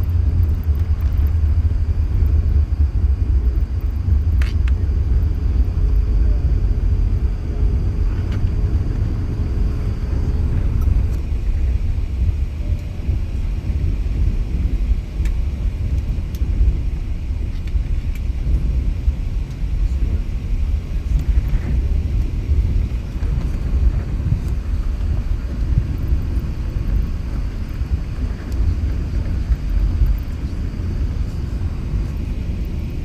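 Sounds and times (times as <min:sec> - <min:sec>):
airliner cabin rumble: 0:00.0 - 0:33.0.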